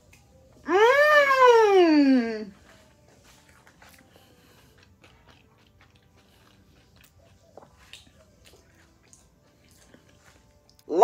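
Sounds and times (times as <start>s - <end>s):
chewing food: 2.5s - 11.0s.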